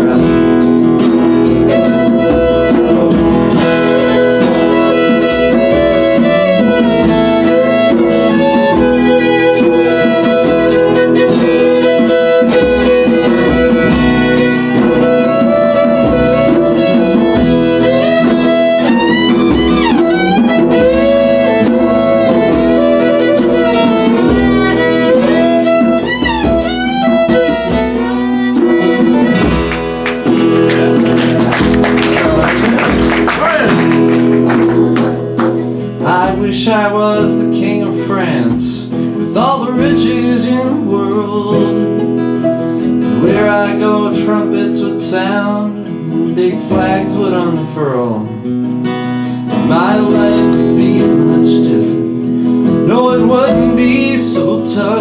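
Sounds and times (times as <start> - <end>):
acoustic guitar accompaniment: 0.0 - 55.0
bowed violin melody: 1.7 - 31.7.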